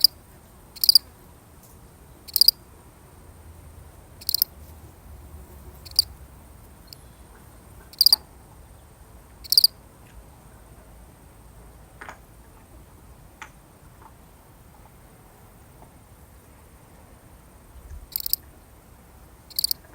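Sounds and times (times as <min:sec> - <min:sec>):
cricket chirping: 0:00.0 - 0:01.1, 0:02.0 - 0:04.6, 0:05.2 - 0:09.8, 0:18.1 - 0:18.5, 0:19.5 - 0:19.9.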